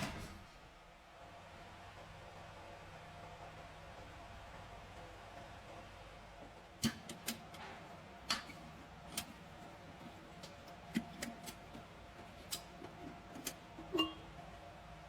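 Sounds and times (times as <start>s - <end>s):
sharp clicks and light knocks: 6.8s - 14.0s.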